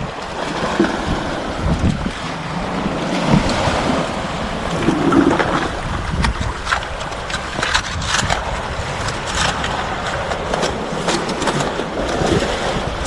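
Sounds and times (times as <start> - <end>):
wind buffeting microphone: 0.0 - 13.0
sharp clicks and scrapes: 4.8 - 12.6.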